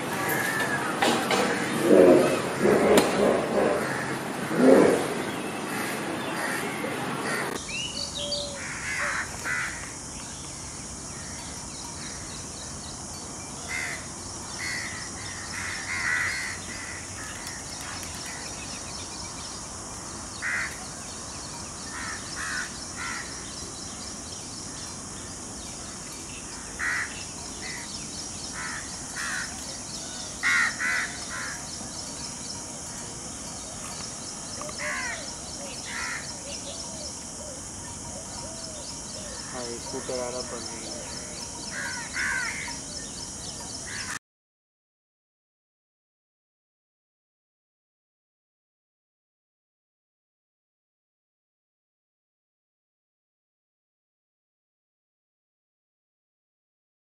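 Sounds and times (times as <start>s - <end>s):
loud rough noise: 0.0s - 7.6s
steady high hiss: 0.0s - 44.1s
birds calling harshly: 0.0s - 44.2s.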